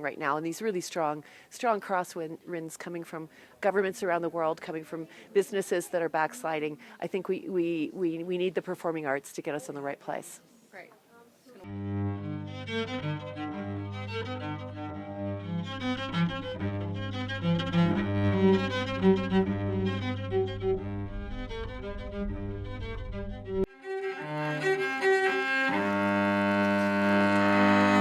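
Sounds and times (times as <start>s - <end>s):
bowed cello melody: 11.7s - 28.0s.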